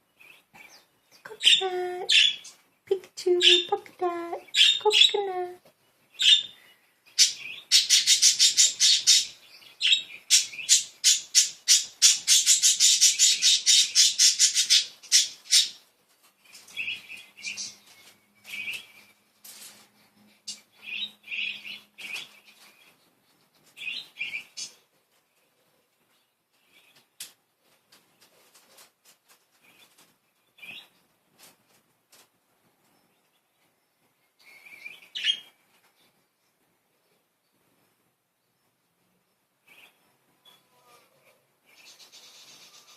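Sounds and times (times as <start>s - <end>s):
budgerigars chirping: 6.2s - 15.8s.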